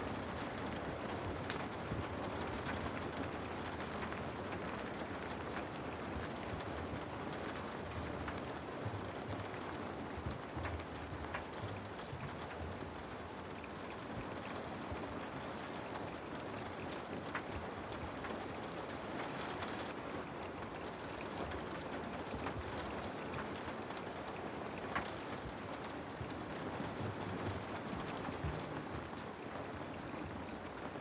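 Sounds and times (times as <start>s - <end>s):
raindrop ticks: 0.0s - 31.0s
steady rain hiss: 0.0s - 31.0s.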